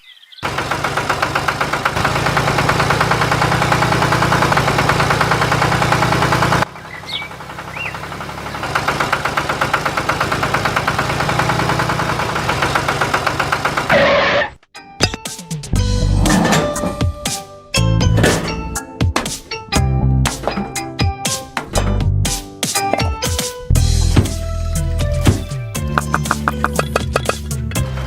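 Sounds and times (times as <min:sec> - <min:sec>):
engine chugging: 0:00.4 - 0:14.4, 0:23.7 - 0:28.0.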